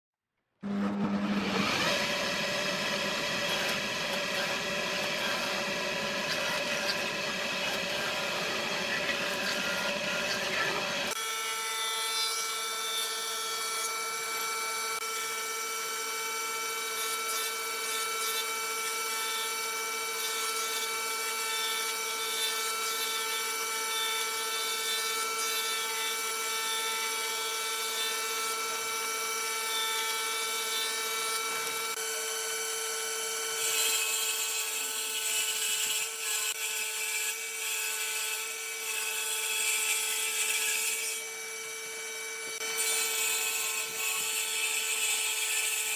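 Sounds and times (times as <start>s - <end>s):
power tool whining: 0.6s - 45.9s.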